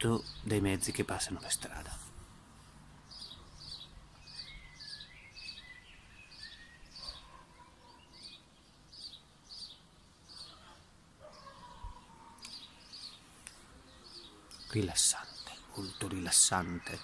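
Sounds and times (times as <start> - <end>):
distant road traffic rumble: 0.0 - 17.0
small bird high chirps: 3.0 - 17.0
lower whistled bird notes: 3.2 - 7.4.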